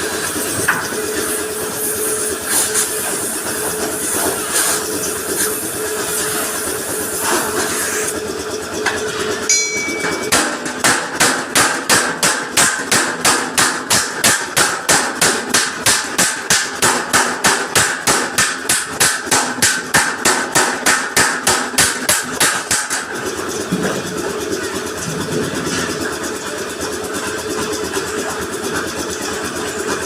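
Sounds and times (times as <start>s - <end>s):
short ringing clink: 9.5s - 10.4s
hammer beating metal bumper: 9.5s - 23.1s.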